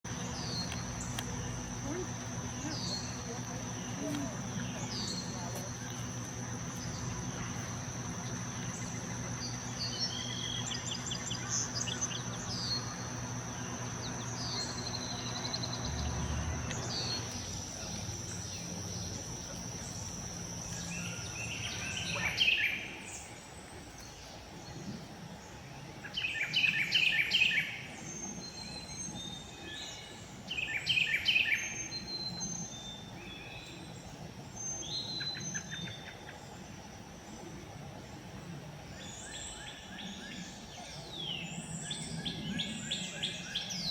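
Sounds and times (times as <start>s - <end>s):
low background hum: 0.0s - 43.9s
bird calls: 0.1s - 25.1s
high-pitched insect drone: 0.1s - 43.9s.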